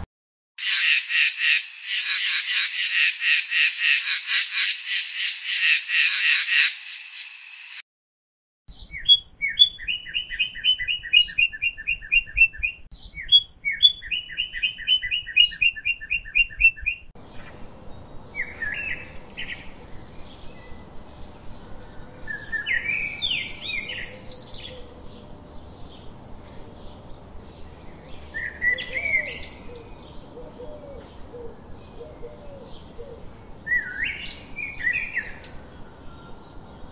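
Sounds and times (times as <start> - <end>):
frog croaking: 0.6 - 7.6
songbird trilling song: 8.7 - 26.1, 26.7 - 36.9.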